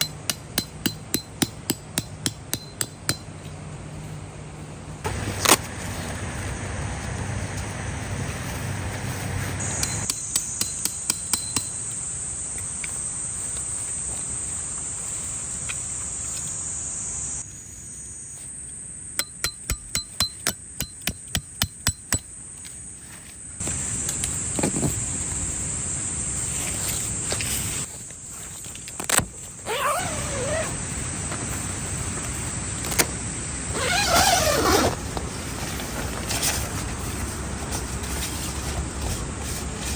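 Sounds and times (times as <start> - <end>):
hammer striking metal stakes: 0.0 - 3.6, 9.7 - 12.0, 19.1 - 22.3
insects droning: 0.0 - 39.9.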